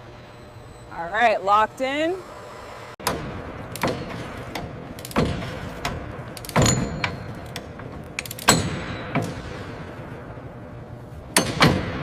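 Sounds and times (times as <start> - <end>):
ringing metal hits: 6.5 - 7.5, 8.3 - 9.4.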